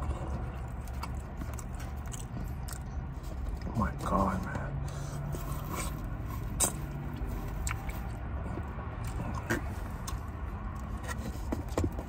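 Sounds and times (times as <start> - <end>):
person chewing chicken wing: 0.0 - 3.7, 4.7 - 11.3
wet mouth clicks and smacks: 7.6 - 8.3.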